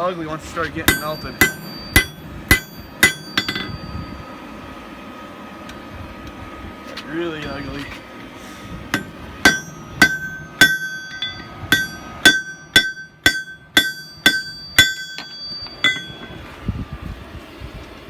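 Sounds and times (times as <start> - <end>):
hammer striking metal on anvil: 0.9 - 4.3, 8.9 - 16.5.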